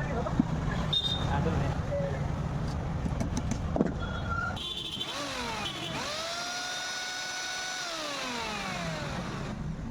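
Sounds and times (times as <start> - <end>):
electric motor whine: 5.1 - 9.6.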